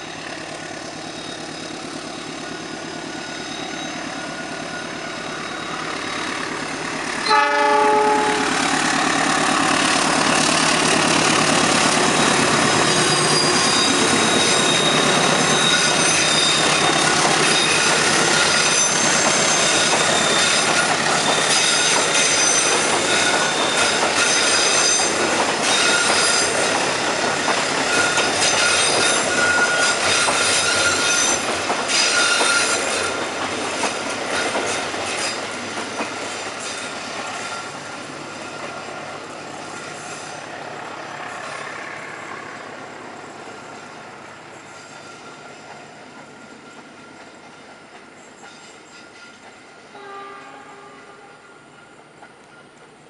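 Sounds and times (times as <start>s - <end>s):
diesel locomotive engine: 0.0s - 53.0s
train carriages rolling on rails: 0.0s - 53.0s
high-pitched wheel squeal: 0.9s - 6.5s, 7.2s - 10.6s, 11.8s - 33.3s
train horn: 7.2s - 9.5s, 49.9s - 51.6s.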